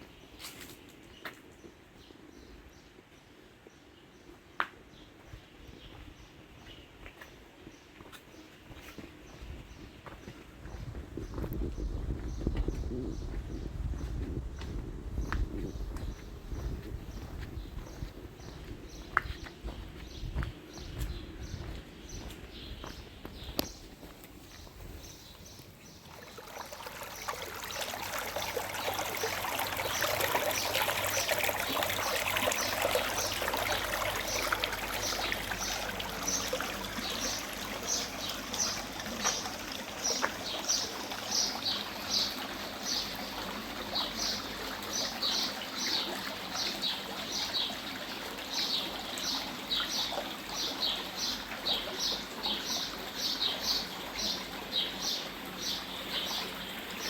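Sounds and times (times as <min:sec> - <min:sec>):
water trickling: 0:14.7 - 0:57.0.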